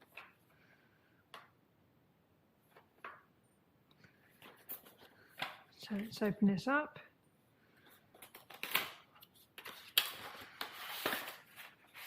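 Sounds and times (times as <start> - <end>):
packaging rustling and crinkling: 8.1 - 12.0.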